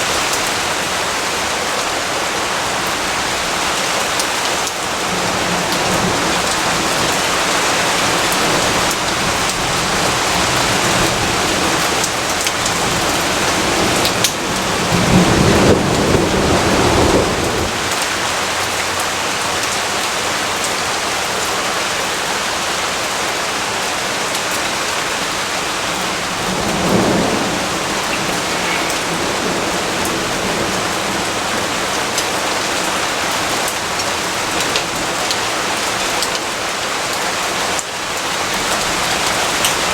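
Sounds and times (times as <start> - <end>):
heavy rain: 0.0 - 39.9
thunder rumbling: 4.8 - 18.8, 25.4 - 33.8.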